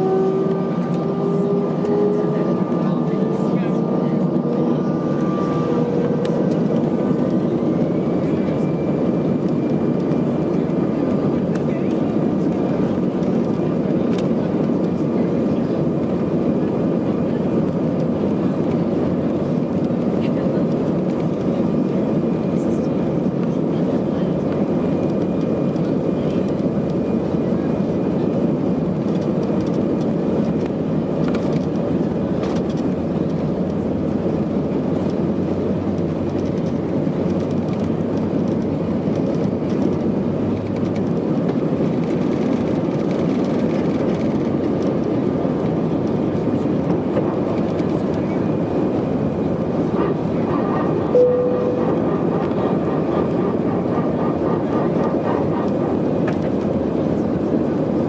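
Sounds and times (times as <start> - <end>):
jetliner engines rumbling: 0.0 - 58.0
short single tone: 51.1 - 52.1
faint higher whine: 51.1 - 52.6.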